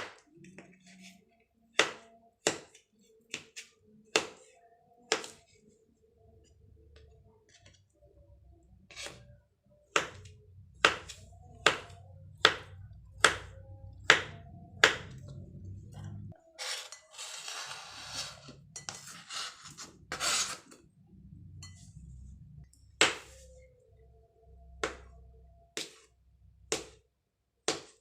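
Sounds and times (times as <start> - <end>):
low steady hum: 10.2 - 16.4, 20.8 - 25.7
knife chopping on cutting board: 10.8 - 15.2, 23.0 - 23.4, 26.7 - 27.0, 27.6 - 28.0.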